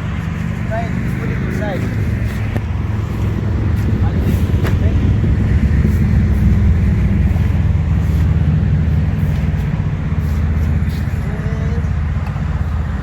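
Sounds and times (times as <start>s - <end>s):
steady low rumble with hum: 0.0s - 13.0s.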